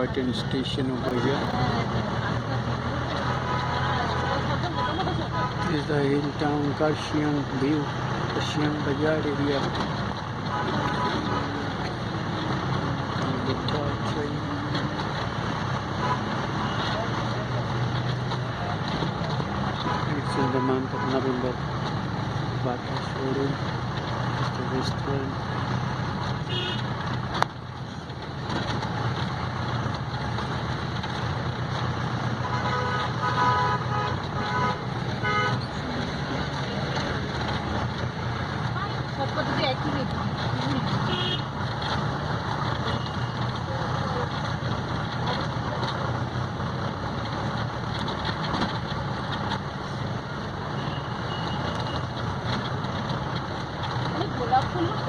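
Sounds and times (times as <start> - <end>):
road noise: 0.0 - 55.0
vehicle engine running: 0.0 - 55.0
vehicle horn short toots: 26.5 - 26.8, 32.5 - 35.6, 41.1 - 41.5.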